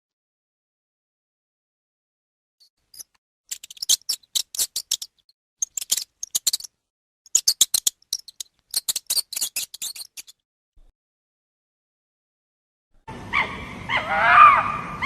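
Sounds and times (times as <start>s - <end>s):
small animal clicking chirps: 2.9s - 6.7s, 7.3s - 10.4s.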